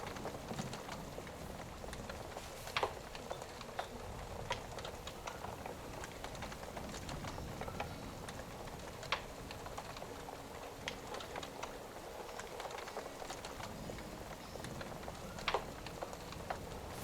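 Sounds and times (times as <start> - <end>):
hiss of rain: 0.0 - 17.0
wood fire crackling: 0.0 - 17.0.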